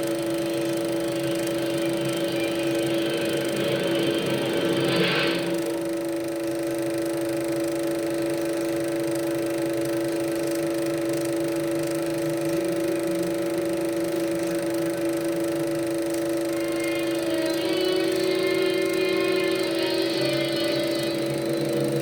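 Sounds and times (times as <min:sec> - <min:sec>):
constant tones: 0:00.0 - 0:06.3, 0:15.0 - 0:22.0
film projector humming: 0:00.0 - 0:22.0.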